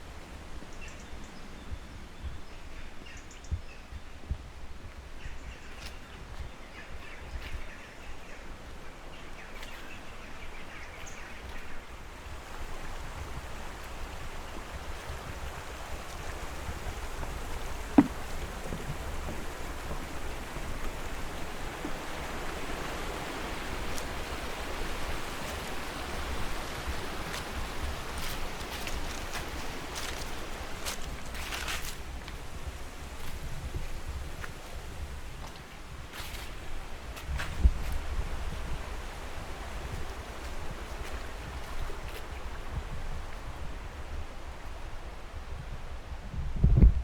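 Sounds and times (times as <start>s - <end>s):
stream water rushing: 10.1s - 35.6s, 38.0s - 45.4s.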